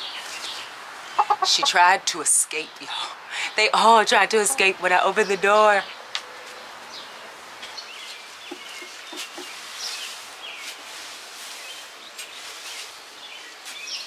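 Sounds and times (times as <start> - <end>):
birds chirping: 0.0 - 10.8, 11.5 - 14.0
steady outdoor hiss: 0.0 - 14.0.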